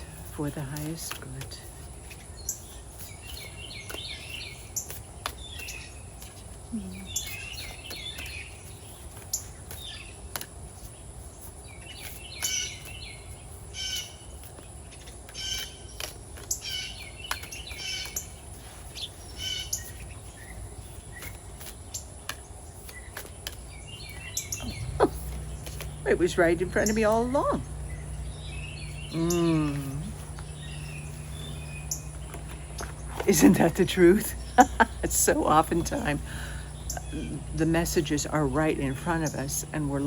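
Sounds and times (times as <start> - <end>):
outdoor background noise: 0.0 - 40.0
songbirds chirping: 0.0 - 40.0.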